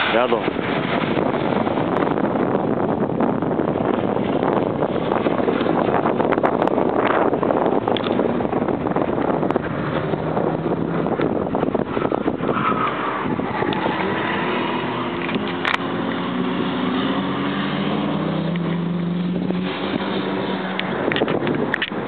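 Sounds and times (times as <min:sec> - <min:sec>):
wind buffeting microphone: 0:00.0 - 0:22.0
racing car engine accelerating: 0:07.0 - 0:21.7.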